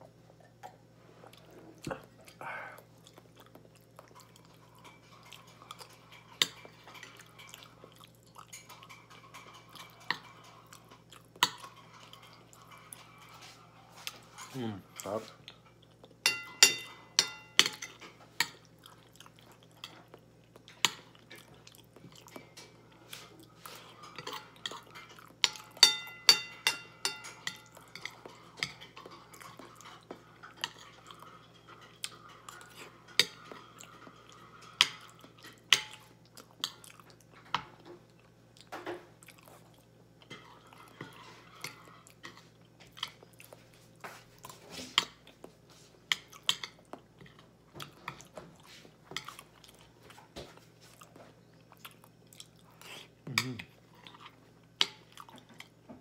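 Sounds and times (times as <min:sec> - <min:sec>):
chewing pasta: 0:00.0 - 0:16.2, 0:17.7 - 0:25.9, 0:26.6 - 0:55.9
fork clinking and scraping plate: 0:08.4 - 0:14.6, 0:16.2 - 0:18.2, 0:22.5 - 0:36.0.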